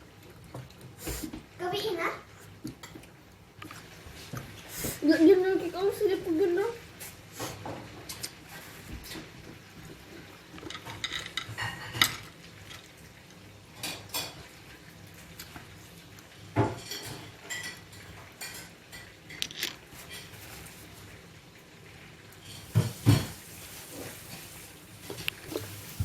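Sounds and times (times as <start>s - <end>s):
cutlery and dishes clinking: 10.6s - 12.3s, 16.6s - 20.4s, 22.5s - 23.4s.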